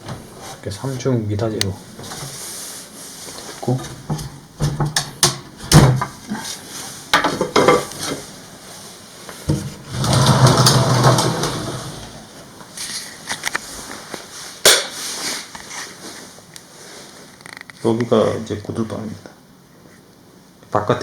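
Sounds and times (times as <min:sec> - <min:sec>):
wooden door knocks and clacks: 0:04.6 - 0:06.1
sliding door rumbling along track: 0:09.8 - 0:12.3.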